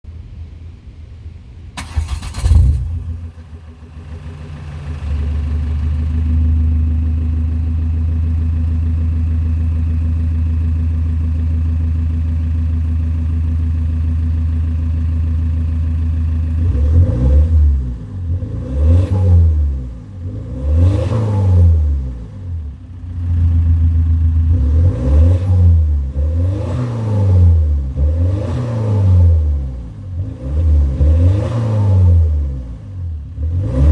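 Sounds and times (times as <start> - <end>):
diesel engine starting and idling: 1.7 - 27.7
engine revving in short blips: 1.8 - 3.3, 16.6 - 22.7, 24.4 - 33.9.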